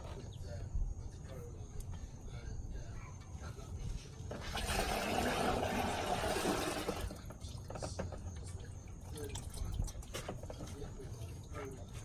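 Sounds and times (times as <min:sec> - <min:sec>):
liquid pouring: 0:04.4 - 0:07.2, 0:08.5 - 0:12.0.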